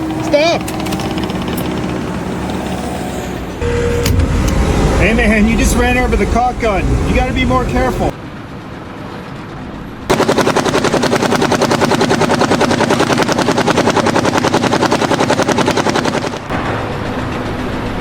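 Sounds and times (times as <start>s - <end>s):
rapid sharp mechanical knocks: 10.1s - 16.5s.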